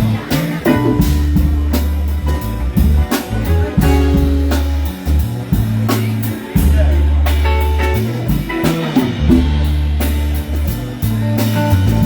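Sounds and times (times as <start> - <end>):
bass line: 0.0 - 12.0
drum kit beat: 0.0 - 12.0
electric guitar: 0.0 - 12.0.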